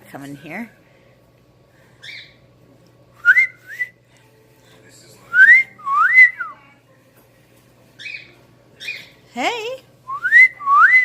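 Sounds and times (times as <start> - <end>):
person whistling: 10.1 - 11.0.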